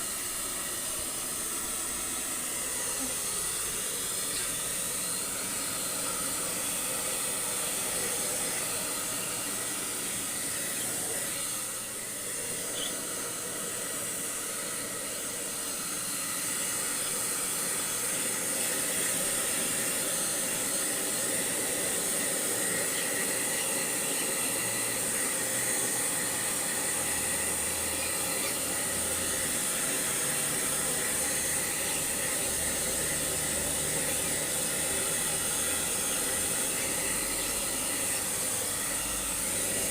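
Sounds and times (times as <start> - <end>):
blow dryer hissing: 0.0 - 39.9.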